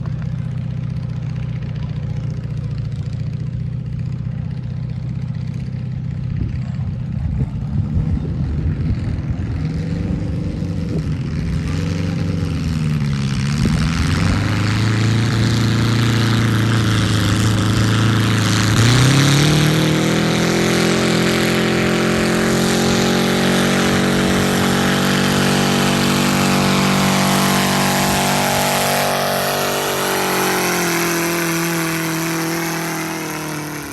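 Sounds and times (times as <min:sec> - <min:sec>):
tractor engine revving: 0:08.8 - 0:33.9.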